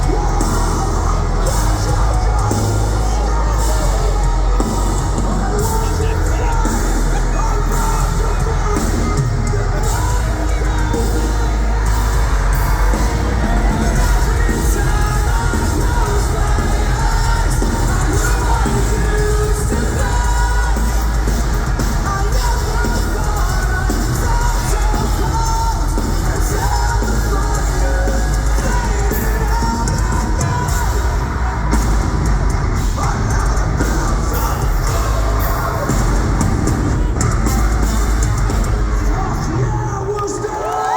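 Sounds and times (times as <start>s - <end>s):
metalcore band playing live: 0.0s - 40.9s.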